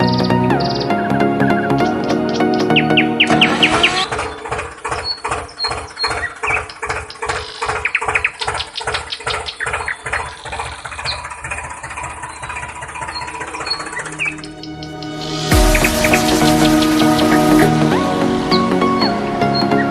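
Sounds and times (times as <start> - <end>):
rhythmic clatter: 1.7 - 19.0
small motor whining: 2.1 - 15.5.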